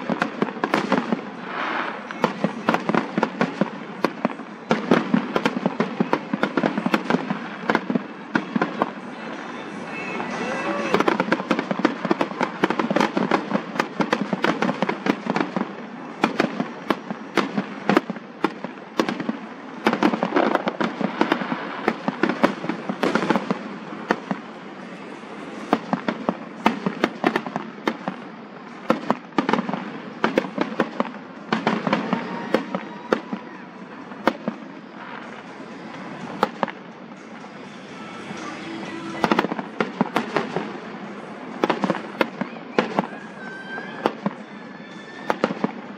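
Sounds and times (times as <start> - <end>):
fireworks bangs and crackle: 0.0 - 45.9.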